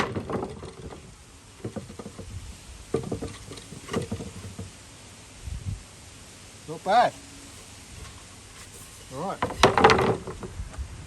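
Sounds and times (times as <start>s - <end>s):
wooden board knocking and clattering: 0.0s - 4.8s, 7.6s - 10.6s.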